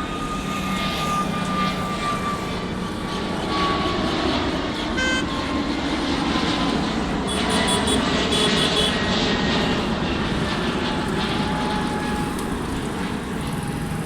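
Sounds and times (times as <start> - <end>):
aeroplane engines running: 0.0 - 14.0
road traffic noise: 0.0 - 14.0.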